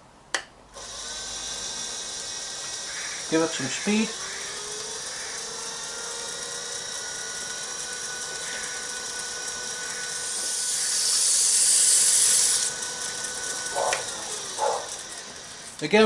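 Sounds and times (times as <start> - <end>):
wood lathe motor whine: 0.8 - 16.0
sandpaper hissing on spinning wood: 2.4 - 6.0, 8.1 - 15.8.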